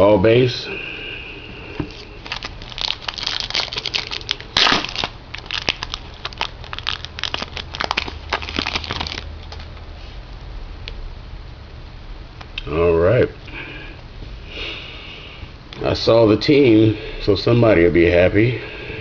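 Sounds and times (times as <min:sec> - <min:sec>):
wrapper crinkling and crackling: 0:01.9 - 0:09.8.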